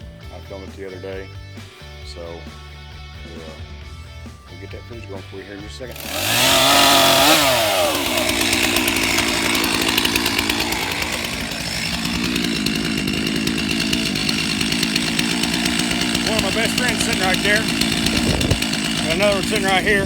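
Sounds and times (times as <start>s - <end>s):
chainsaw running: 5.6s - 20.0s.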